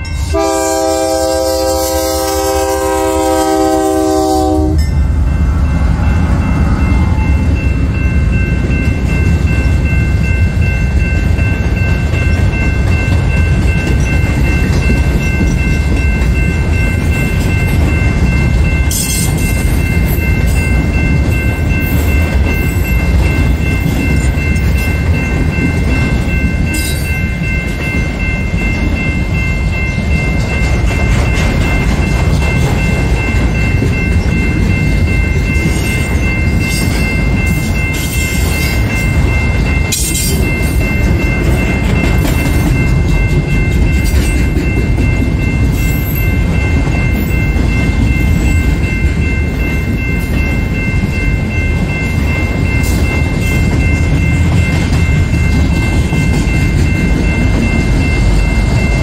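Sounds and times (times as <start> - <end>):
high whine: 0.0 - 10.3
train wheels rumbling on rail: 0.0 - 59.0.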